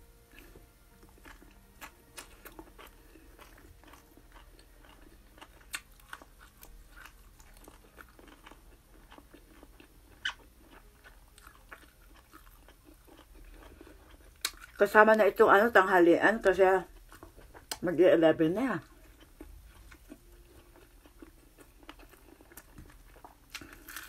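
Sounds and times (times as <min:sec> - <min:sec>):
person chewing with crisp crunches: 0:00.2 - 0:15.4, 0:16.8 - 0:17.8, 0:18.8 - 0:24.0.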